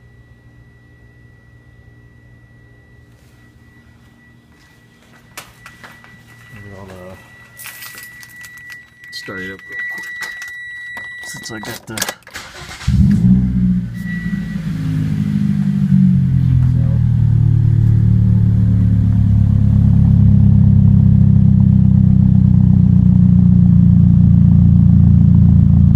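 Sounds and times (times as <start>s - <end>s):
car engine idling: 12.4s - 25.9s.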